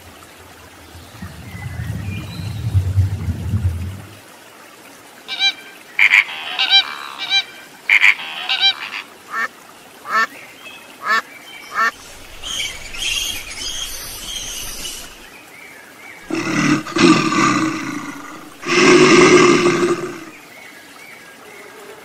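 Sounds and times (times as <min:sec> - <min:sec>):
low watery rumble: 0:00.0 - 0:04.5, 0:12.0 - 0:15.3, 0:16.3 - 0:20.4
ducks quacking: 0:05.4 - 0:09.5, 0:10.1 - 0:10.3, 0:11.0 - 0:12.0.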